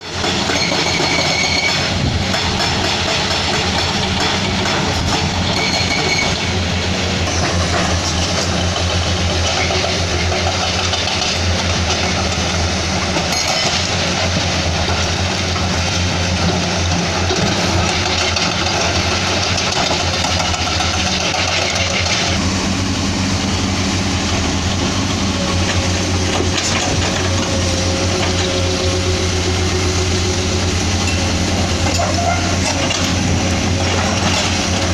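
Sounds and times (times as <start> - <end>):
heavy diesel engines running: 0.0 - 34.9.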